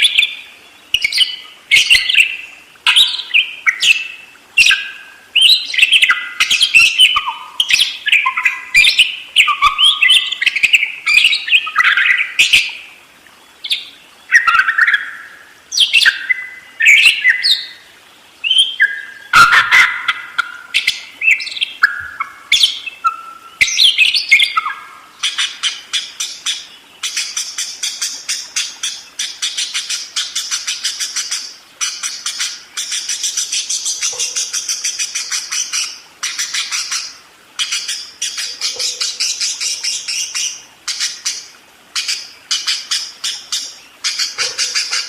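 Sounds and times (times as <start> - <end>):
budgerigar warbling: 18.8 - 25.8.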